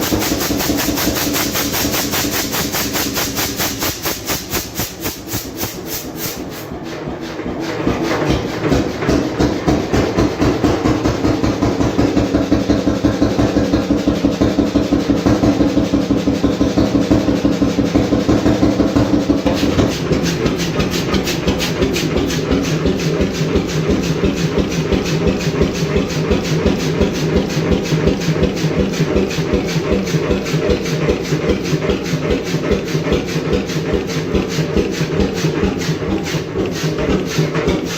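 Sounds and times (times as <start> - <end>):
sharp engine clatter: 0.0 - 37.9
single-cylinder engine running: 0.0 - 37.9.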